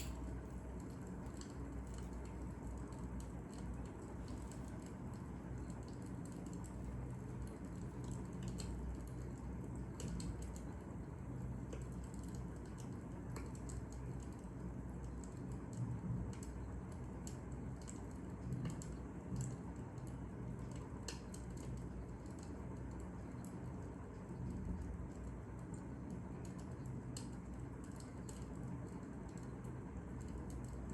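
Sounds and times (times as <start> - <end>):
wood fire crackling and popping: 0.0 - 4.5
low steady rumble: 0.0 - 30.9.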